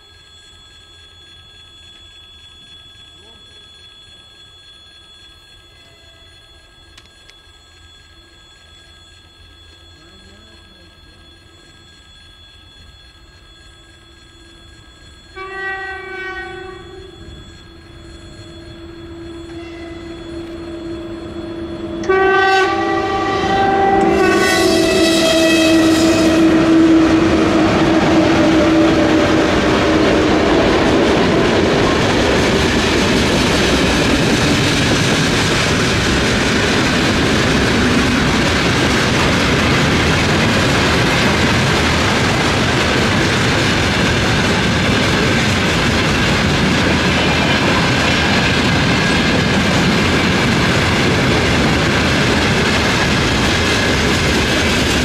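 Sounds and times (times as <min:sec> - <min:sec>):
freight train rumbling past: 0:14.7 - 0:55.0
train horn blast: 0:15.4 - 0:17.1, 0:19.5 - 0:20.2, 0:21.8 - 0:30.0.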